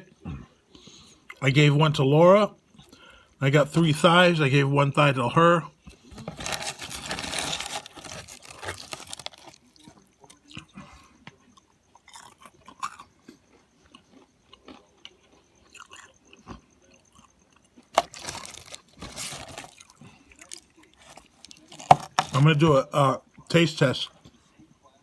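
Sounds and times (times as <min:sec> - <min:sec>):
person chewing food: 0:05.9 - 0:22.5
rustling: 0:06.0 - 0:09.7, 0:17.9 - 0:19.9.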